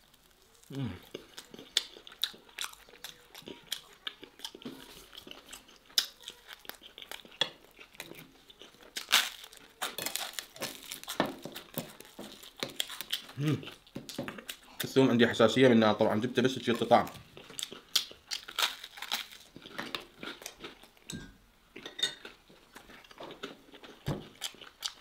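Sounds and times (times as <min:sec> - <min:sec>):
person chewing food: 0:00.0 - 0:14.9, 0:16.7 - 0:21.1, 0:21.7 - 0:25.0.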